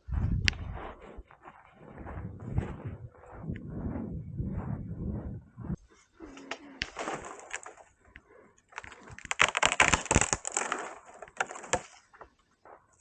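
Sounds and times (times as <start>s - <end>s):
camping gear rustling and clattering: 5.4s - 9.4s.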